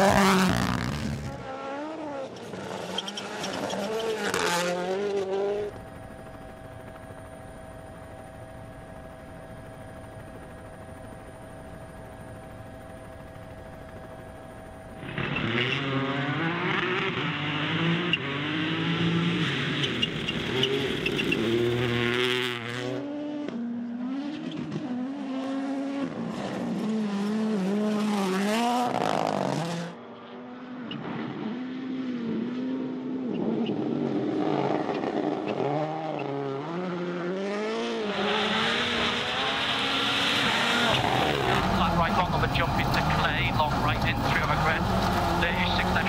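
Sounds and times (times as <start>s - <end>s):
rally car engines revving: 0.0s - 5.8s, 15.0s - 46.0s.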